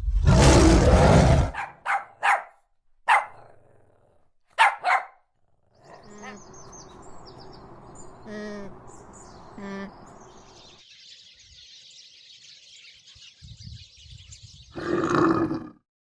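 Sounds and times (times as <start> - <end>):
bird calls: 5.8 - 15.1.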